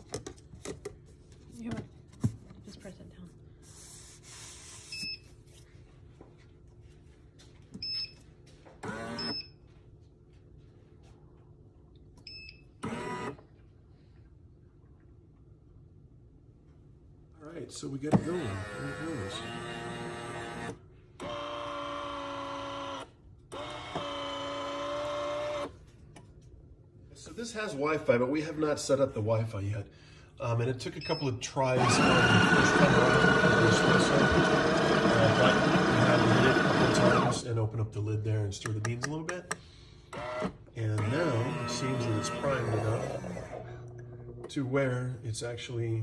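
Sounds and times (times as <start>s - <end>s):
espresso machine whirring: 18.1s - 25.7s, 31.7s - 37.5s, 40.1s - 44.5s.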